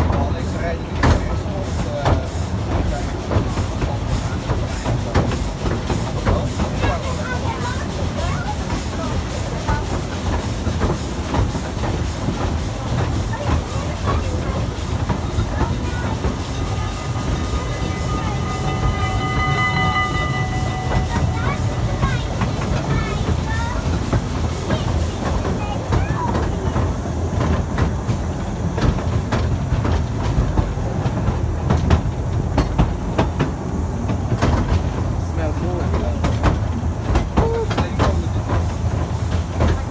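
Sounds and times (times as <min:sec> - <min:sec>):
steam train rumbling: 0:00.0 - 0:39.9
wheels clacking over rail joints: 0:00.0 - 0:39.9
high-pitched squeal: 0:15.3 - 0:24.8.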